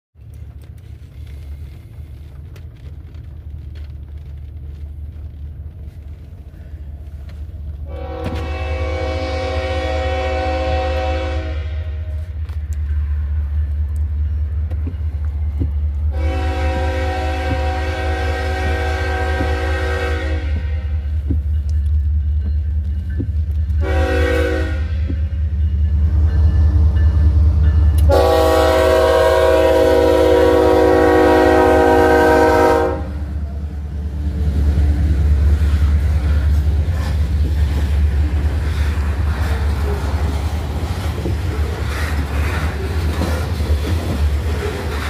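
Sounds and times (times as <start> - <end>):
locomotive engine rumble: 0.2 - 45.0
locomotive air horn blasts: 7.8 - 12.4, 16.1 - 21.1, 23.8 - 25.2, 28.0 - 33.6.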